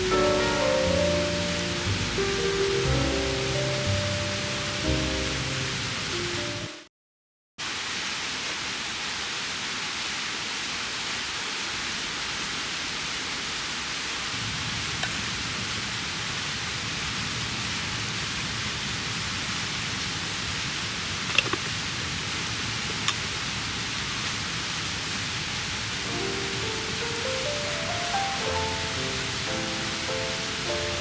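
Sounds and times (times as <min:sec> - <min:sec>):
mountain stream rushing: 0:00.0 - 0:06.7, 0:19.7 - 0:31.0.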